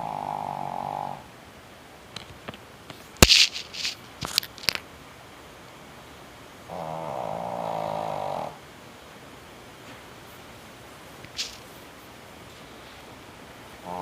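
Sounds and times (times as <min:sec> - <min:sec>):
dog snoring: 0:00.0 - 0:01.2, 0:06.7 - 0:08.6.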